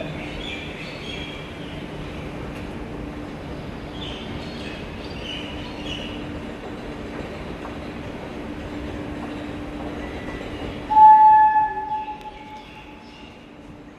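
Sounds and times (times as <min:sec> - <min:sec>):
metro train rumbling: 0:00.0 - 0:13.9
train horn blast: 0:10.9 - 0:12.8.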